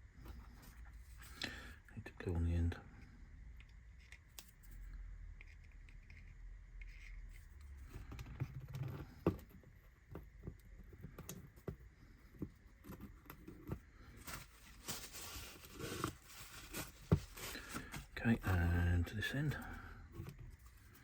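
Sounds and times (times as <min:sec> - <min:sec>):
small taps clicks and scrapes: 0:03.6 - 0:13.8.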